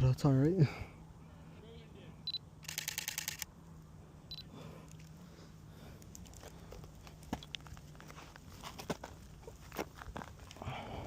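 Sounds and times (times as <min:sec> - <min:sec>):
short high camera beep: 0:02.3 - 0:03.4
rapid camera shutter clicks: 0:02.6 - 0:03.5.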